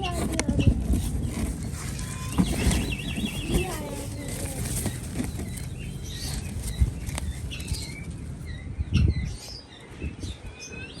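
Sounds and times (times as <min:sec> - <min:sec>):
high bird chirps: 0:01.9 - 0:09.7.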